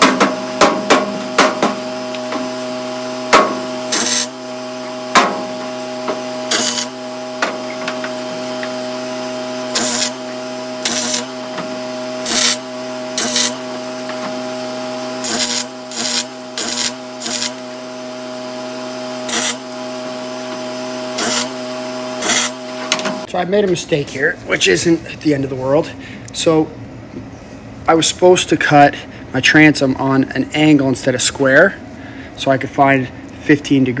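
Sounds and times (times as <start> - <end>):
welder bursts: 0.0 - 23.3
steady machine hum: 0.0 - 34.0.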